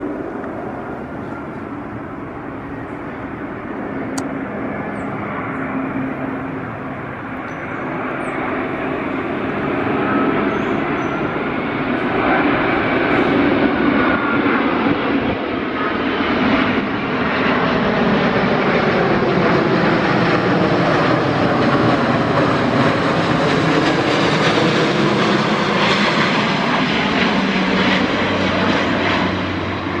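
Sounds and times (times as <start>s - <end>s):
jet engine rush with whine: 0.0s - 30.0s.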